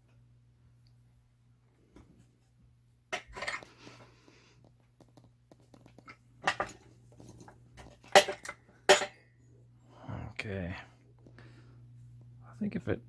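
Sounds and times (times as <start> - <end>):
metal clinking and clanking: 6.0 - 9.2.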